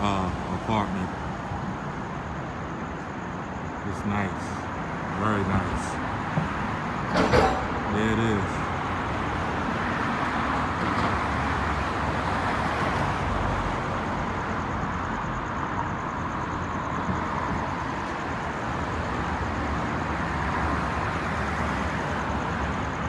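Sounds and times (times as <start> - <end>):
cars passing on city street: 0.0 - 23.0.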